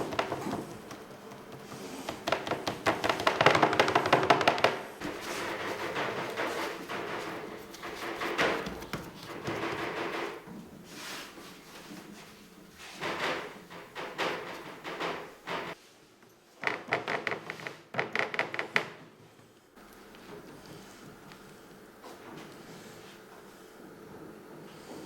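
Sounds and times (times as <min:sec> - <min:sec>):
knocks and clatters: 0:00.0 - 0:10.9, 0:12.8 - 0:15.8.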